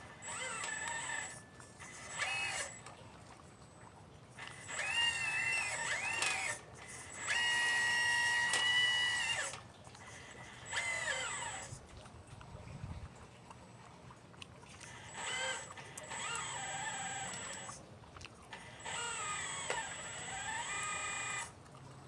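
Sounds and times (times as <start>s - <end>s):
model excavator electric motors whining: 0.0s - 2.9s, 4.3s - 11.8s, 14.8s - 17.8s, 18.5s - 21.6s.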